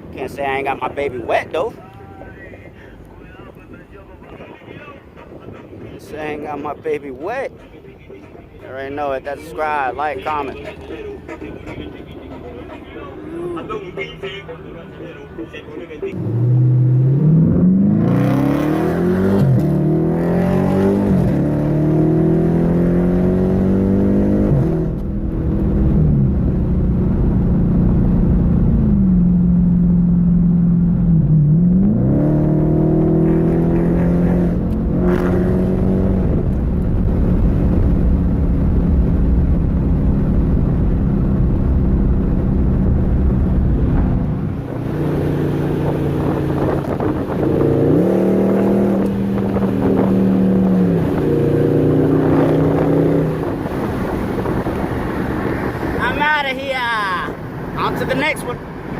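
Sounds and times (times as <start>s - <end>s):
car engine accelerating: 9.2s - 56.4s.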